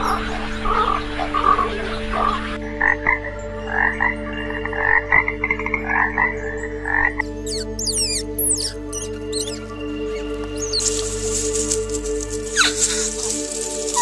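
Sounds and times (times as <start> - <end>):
frog croaking: 0.8 - 9.6.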